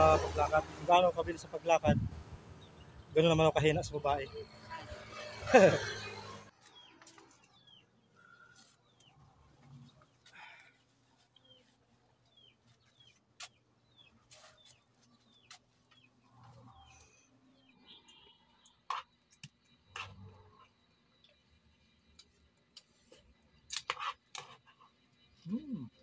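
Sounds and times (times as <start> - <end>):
faint bird chirps: 13.8 - 21.6, 24.6 - 26.0.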